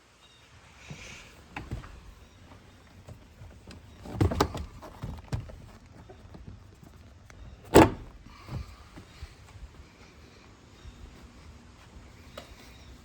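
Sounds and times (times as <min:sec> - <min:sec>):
car hood clunk: 0:07.5 - 0:08.7
car hood latch clicks and knocks: 0:07.6 - 0:08.6.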